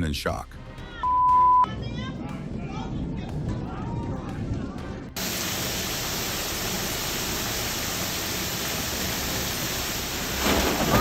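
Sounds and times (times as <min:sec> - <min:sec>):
heavy rain: 0:05.2 - 0:11.0.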